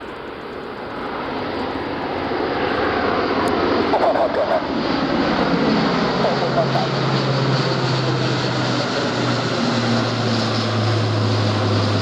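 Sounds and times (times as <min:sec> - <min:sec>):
turboprop aircraft engines droning: 0:00.0 - 0:12.0
faint voice: 0:06.2 - 0:07.0.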